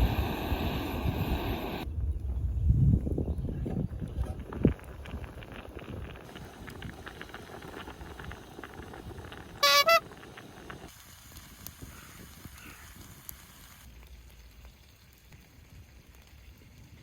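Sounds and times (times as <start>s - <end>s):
fire crackling: 0.0s - 17.0s
short honk-like notes: 9.6s - 10.0s.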